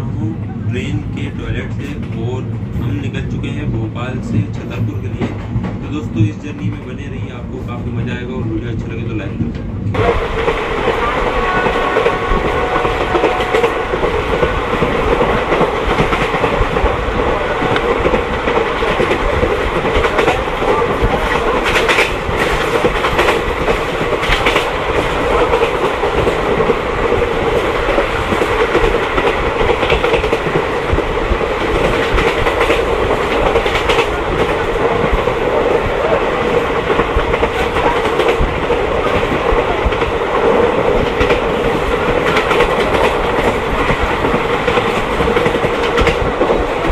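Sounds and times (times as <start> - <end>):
train rumbling: 0.0 - 46.9.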